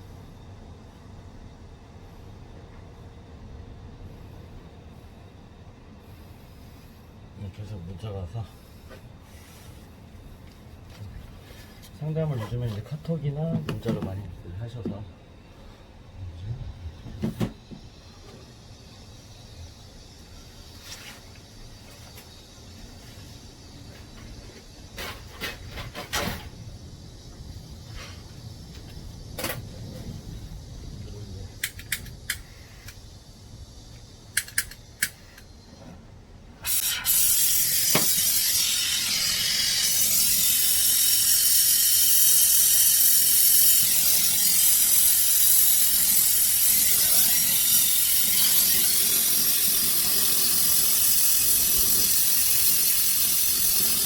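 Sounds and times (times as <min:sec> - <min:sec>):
pressurised gas hissing: 0:00.0 - 0:54.0
sharp clicks and knocks: 0:31.6 - 0:33.0, 0:34.3 - 0:35.5.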